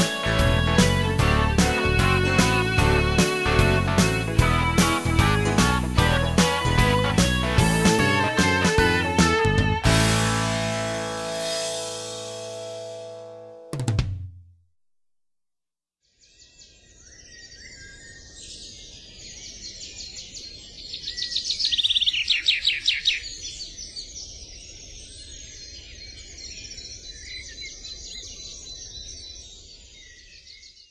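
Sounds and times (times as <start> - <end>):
songbirds chirping and singing: 16.2 - 30.9.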